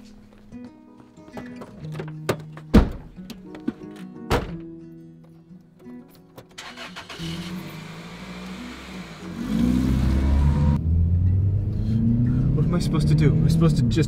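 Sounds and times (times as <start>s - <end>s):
car engine starting and revving: 6.6s - 14.0s.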